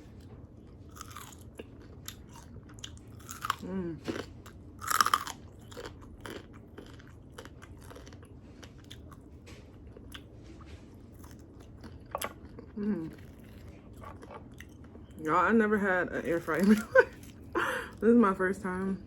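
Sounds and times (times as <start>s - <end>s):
chewing: 0.1s - 15.2s
crunchy chicken wing bites: 3.2s - 8.3s.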